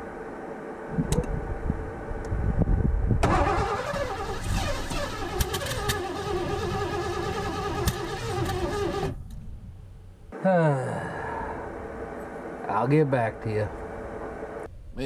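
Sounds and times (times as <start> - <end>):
engine cranking on starter: 3.2 - 9.2.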